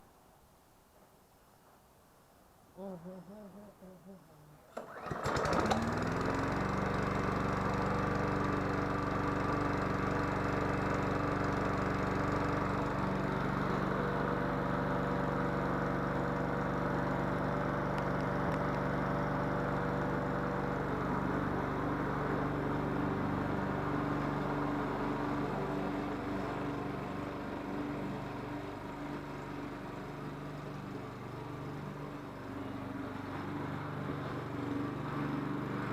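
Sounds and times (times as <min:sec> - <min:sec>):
small engine idling: 0:02.8 - 0:35.9.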